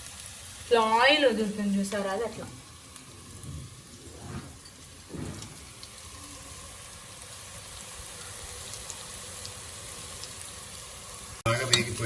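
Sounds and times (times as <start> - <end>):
paste sizzling in oil: 0.0 - 11.4.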